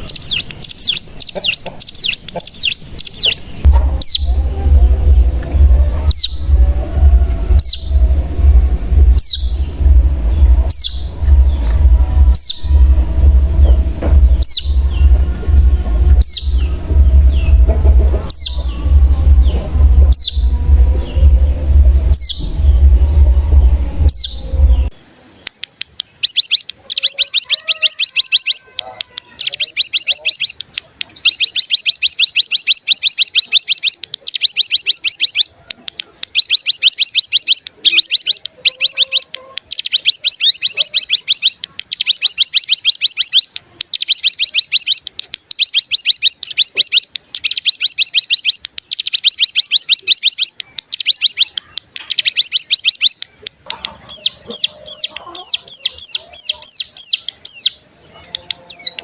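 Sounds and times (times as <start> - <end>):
bird rapid rattling trills: 0.0 - 24.9
low electrical hum: 0.0 - 26.3
bird downward-sweeping call notes: 3.2 - 24.9.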